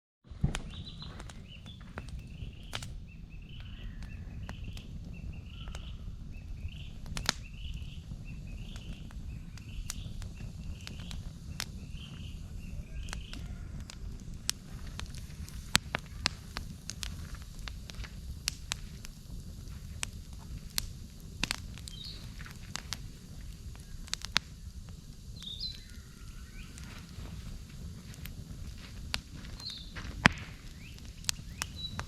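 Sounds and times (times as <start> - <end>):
campfire crackling and popping: 0.2 - 32.0
bird calling: 0.7 - 14.0, 15.0 - 16.7, 25.3 - 27.5.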